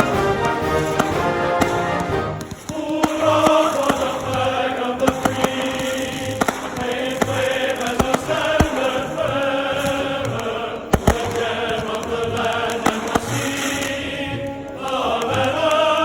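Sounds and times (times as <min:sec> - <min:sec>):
firework bangs: 0:00.0 - 0:15.0
recorded choral music: 0:00.0 - 0:16.0.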